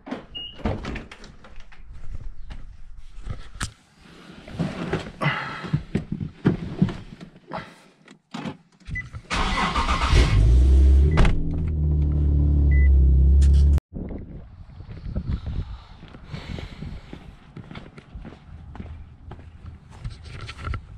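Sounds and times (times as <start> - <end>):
car engine starting and idling: 9.3 - 13.8
short beep: 12.7 - 13.0.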